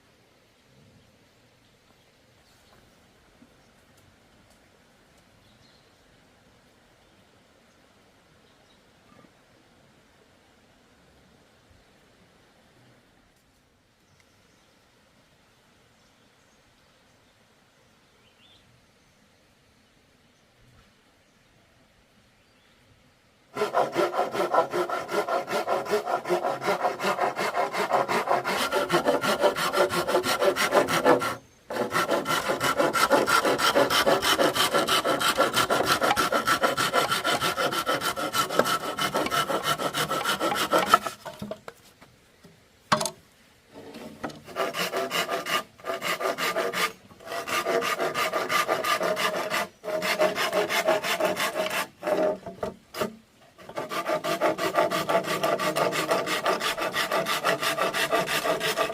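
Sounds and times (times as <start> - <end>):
hand saw cutting bamboo: 23.6 - 41.6, 43.8 - 58.9.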